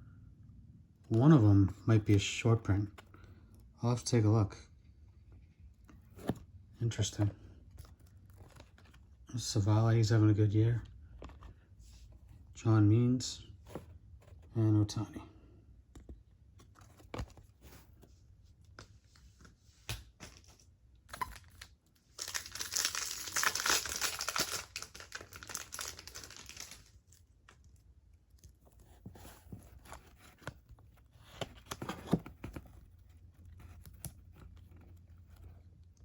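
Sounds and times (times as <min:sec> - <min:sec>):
foil wrapper tearing and crinkling: 0:21.2 - 0:27.1.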